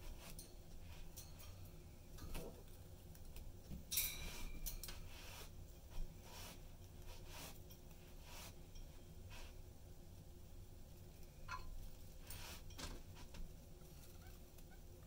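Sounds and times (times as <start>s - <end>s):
budgies scratching and rustling: 0.0s - 9.6s, 11.3s - 15.0s.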